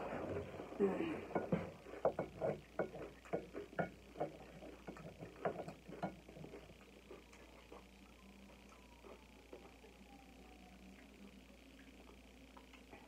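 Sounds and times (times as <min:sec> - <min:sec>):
crunchy chewing of chips: 0:01.8 - 0:11.1.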